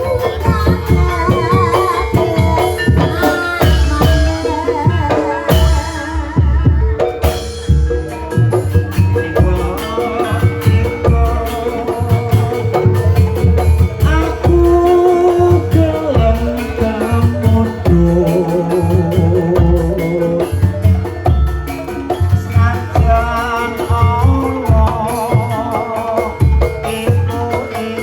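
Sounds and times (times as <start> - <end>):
regular drum beat: 0.0 - 28.0
wavering sung melody: 0.0 - 28.0.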